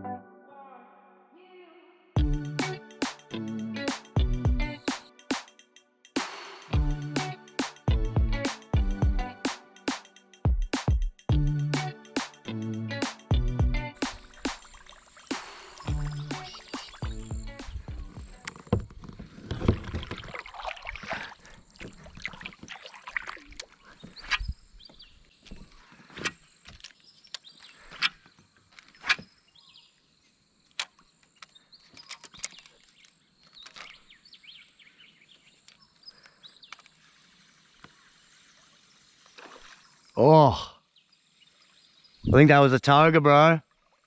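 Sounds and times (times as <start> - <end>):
water splashing: 14.0 - 24.1, 38.6 - 40.0.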